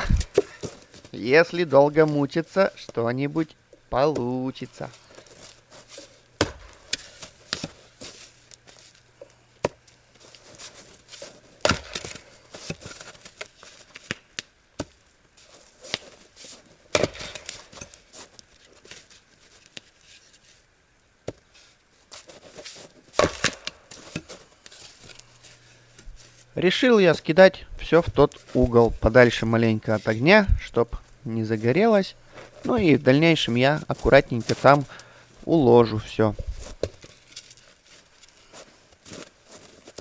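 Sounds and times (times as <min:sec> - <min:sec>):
axe chopping firewood: 0:00.0 - 0:01.1, 0:05.0 - 0:08.6, 0:09.6 - 0:15.0, 0:16.9 - 0:18.1, 0:23.1 - 0:25.4.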